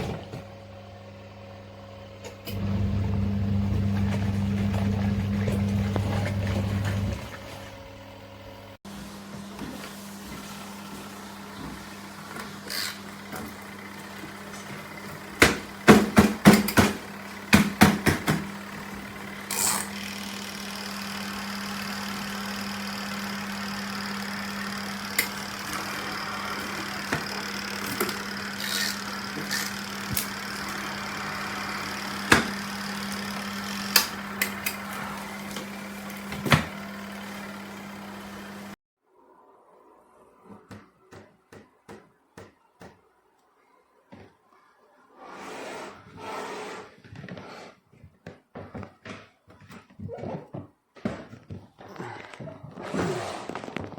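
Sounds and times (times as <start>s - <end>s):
washing machine motor hum: 0.0s - 38.8s
sharp knocks and clatters: 15.4s - 18.5s.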